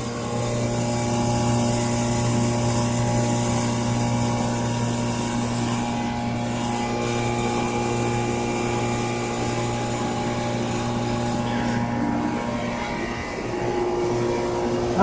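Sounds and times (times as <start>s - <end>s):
heat pump compressor humming: 0.0s - 15.0s.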